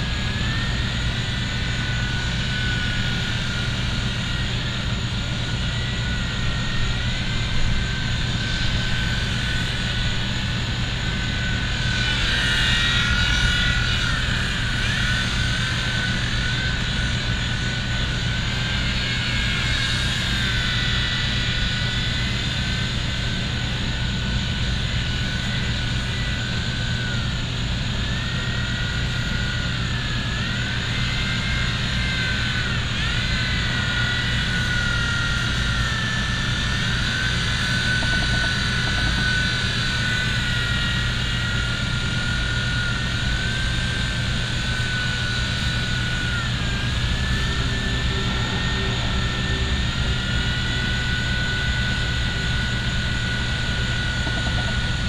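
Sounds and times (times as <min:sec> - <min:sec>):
toy helicopter motor whining: 0:00.0 - 0:55.0.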